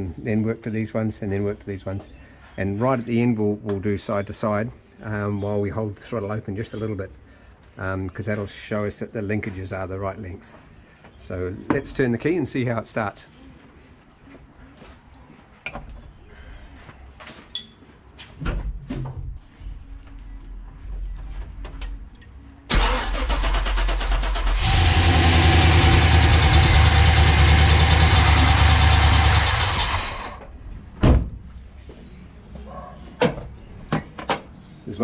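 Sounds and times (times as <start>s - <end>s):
engine starter cranking: 22.7s - 30.4s
engine running: 22.7s - 30.5s.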